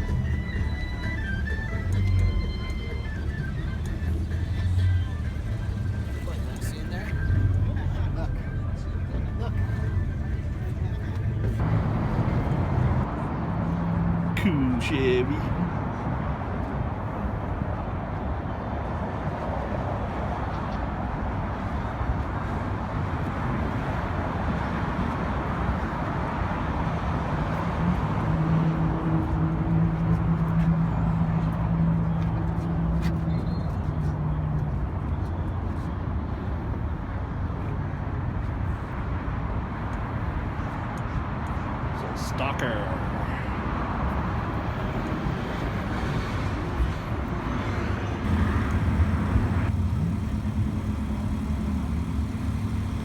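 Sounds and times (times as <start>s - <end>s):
engine hum: 0.0s - 18.2s, 22.6s - 53.0s
vehicles: 0.0s - 53.0s
distant voices: 48.2s - 53.0s.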